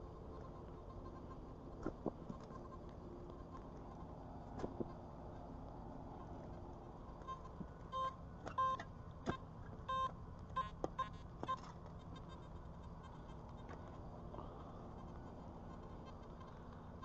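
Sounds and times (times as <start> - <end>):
metal detector beeps: 7.2 - 13.7.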